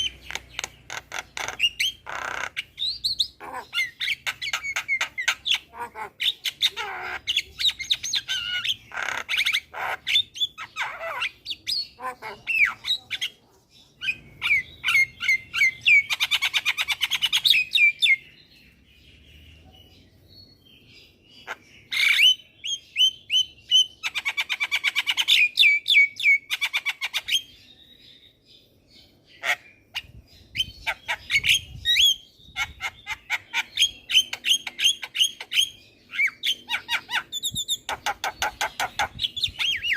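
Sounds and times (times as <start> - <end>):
myna chattering and trilling: 0.0 - 17.7.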